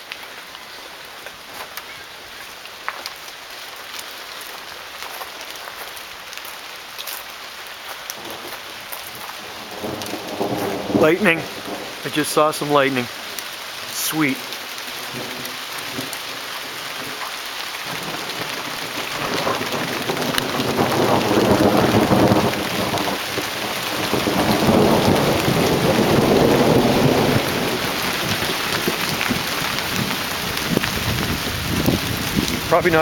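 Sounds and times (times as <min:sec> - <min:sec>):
heavy rain falling: 0:00.0 - 0:33.0
thunder rumbling: 0:09.4 - 0:17.2, 0:17.8 - 0:33.0.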